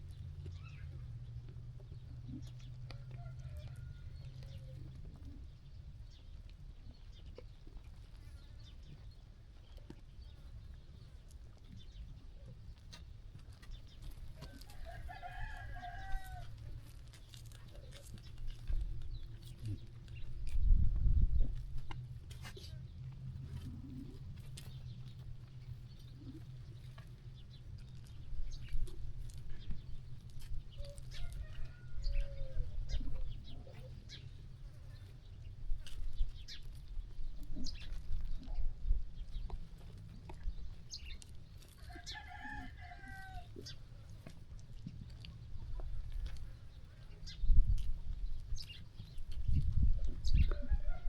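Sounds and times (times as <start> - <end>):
sheep grazing and moving: 0.0 - 51.0
steady low rumble: 18.0 - 41.6.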